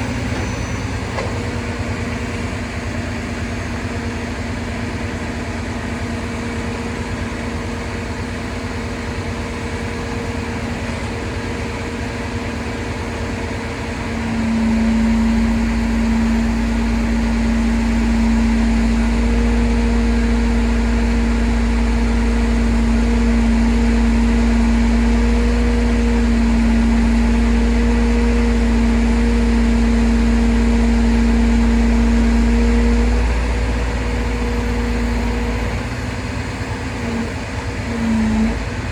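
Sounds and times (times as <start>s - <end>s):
heavy truck engine running: 0.0s - 38.9s.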